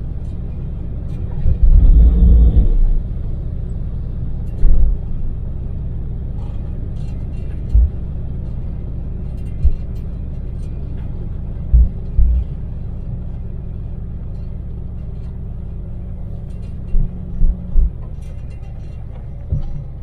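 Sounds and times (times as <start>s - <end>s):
engine and road noise rumble: 0.0s - 20.0s
low thumps: 1.4s - 3.4s, 7.7s - 8.0s, 11.6s - 12.7s, 16.1s - 18.2s.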